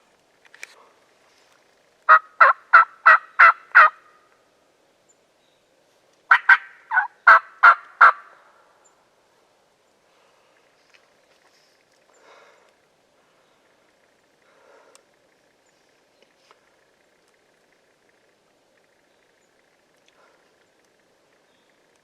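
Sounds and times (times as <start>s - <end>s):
turkey yelping: 2.1s - 4.1s, 6.3s - 8.3s.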